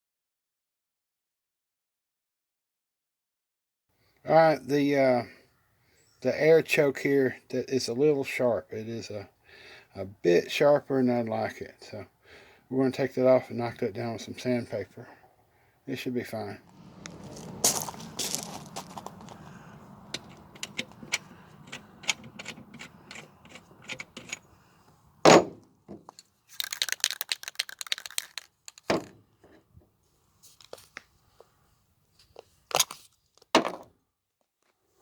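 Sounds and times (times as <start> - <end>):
metal parts clicking and knocking: 20.2 - 24.4, 26.1 - 29.1
scratchy rasping: 20.2 - 24.5.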